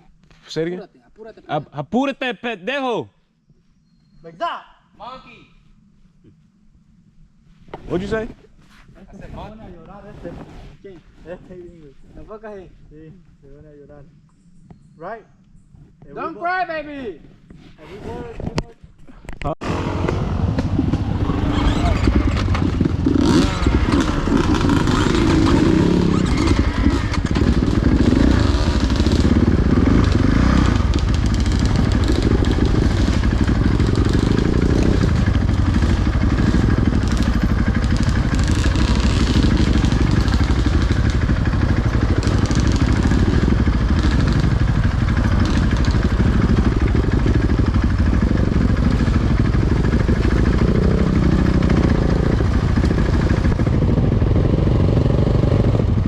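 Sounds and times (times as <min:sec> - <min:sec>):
dirt bike engine revving: 0:19.6 - 0:56.0.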